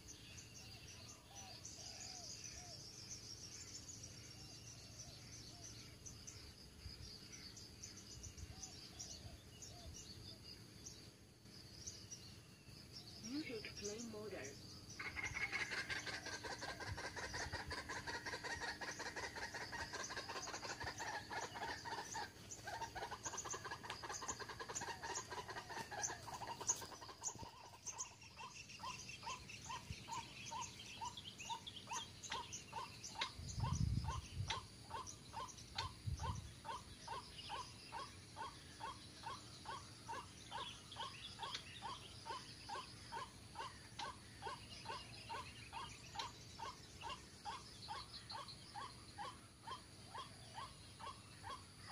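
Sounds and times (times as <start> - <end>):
insects ticking: 9.6 - 51.9
waterhen calls: 13.3 - 39.0.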